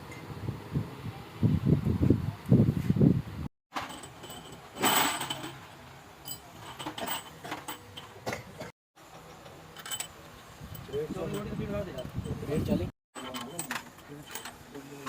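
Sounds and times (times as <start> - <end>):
scraping clatter: 3.7 - 5.7
metallic clinks of tools: 3.8 - 5.6, 6.2 - 8.2, 9.8 - 12.6, 13.2 - 14.6.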